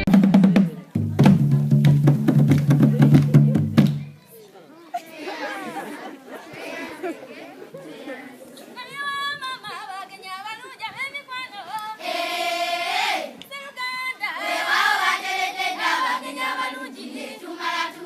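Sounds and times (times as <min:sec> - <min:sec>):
group of voices singing: 0:11.8 - 0:13.4, 0:14.2 - 0:18.0.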